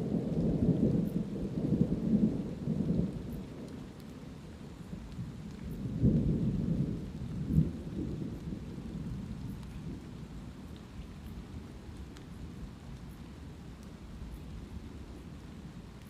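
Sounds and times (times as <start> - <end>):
thunder rumbling: 0.0 - 12.7
light rain: 0.0 - 16.0.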